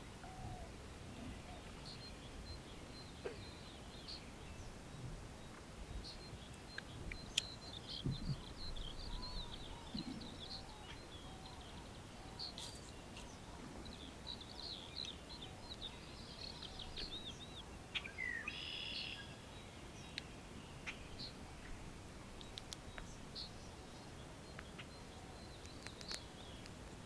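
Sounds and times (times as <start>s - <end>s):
small birds chirping: 0.0s - 26.8s
soft low thuds: 8.0s - 8.4s.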